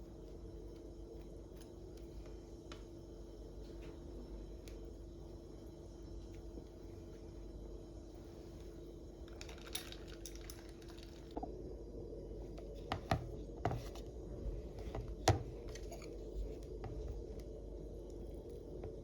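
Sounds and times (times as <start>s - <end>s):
low hum: 11.3s - 19.0s.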